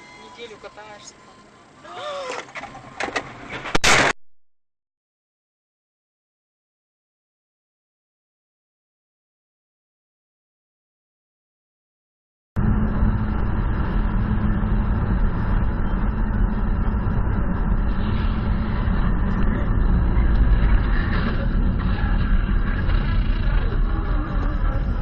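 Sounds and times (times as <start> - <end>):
car engine and road noise: 0.0 - 4.2, 12.6 - 25.0.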